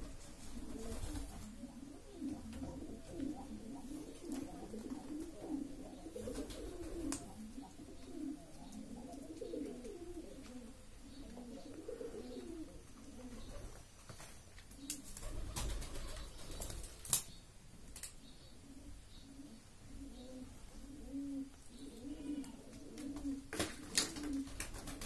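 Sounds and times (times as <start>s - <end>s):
bird cooing: 0.0s - 13.7s, 18.5s - 25.0s.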